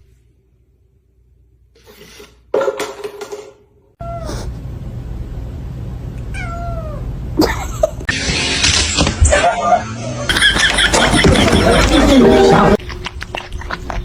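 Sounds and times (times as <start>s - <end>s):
cat meowing: 4.0s - 4.5s, 6.3s - 7.0s.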